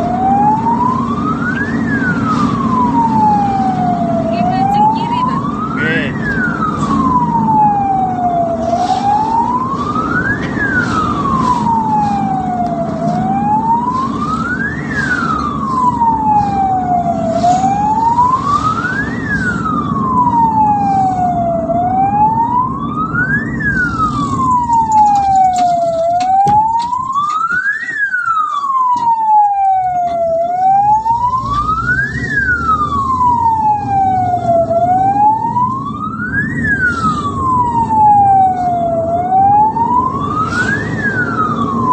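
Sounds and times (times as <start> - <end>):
ambulance siren wailing: 0.0 - 41.9
vehicle rumble on road: 0.0 - 41.9.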